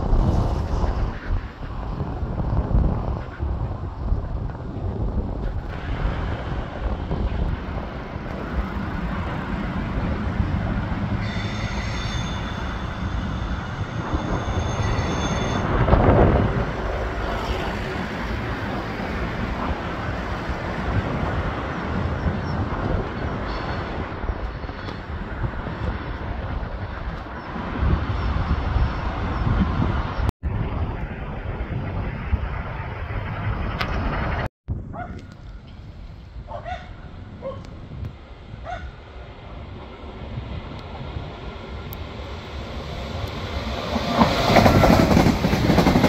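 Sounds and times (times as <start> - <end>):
train wheels rumbling on track: 0.0 - 30.3, 31.1 - 46.0
high squealing tones: 11.2 - 15.7.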